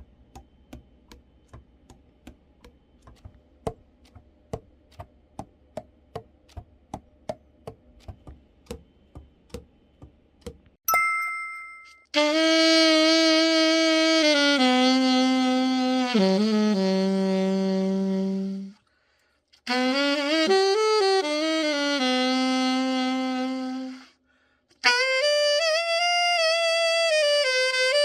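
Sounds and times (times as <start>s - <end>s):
alto saxophone playing: 12.1s - 18.8s, 19.6s - 24.2s, 24.8s - 28.0s.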